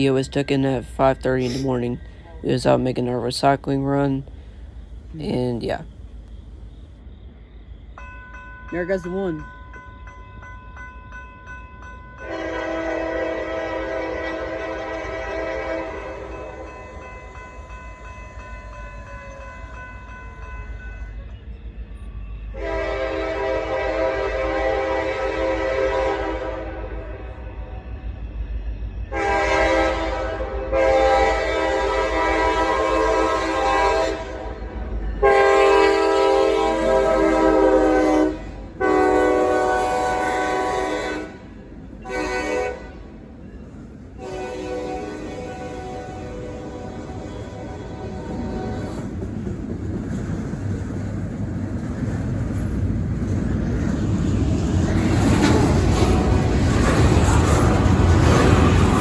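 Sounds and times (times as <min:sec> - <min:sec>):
low rumble of passing train: 0:00.0 - 0:59.0
locomotive air horn: 0:12.2 - 0:16.4, 0:22.5 - 0:27.2, 0:29.1 - 0:34.6, 0:35.2 - 0:43.1, 0:44.2 - 0:49.0.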